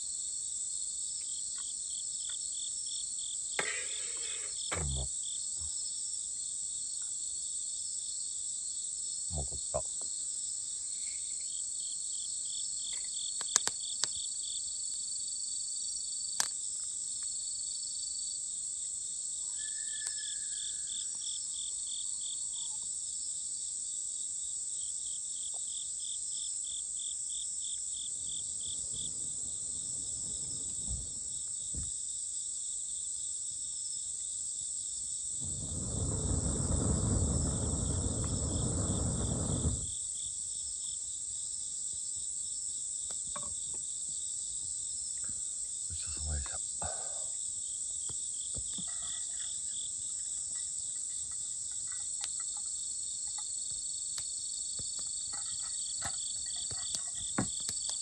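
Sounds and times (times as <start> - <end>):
crickets and insects chirping: 0.0 - 58.0.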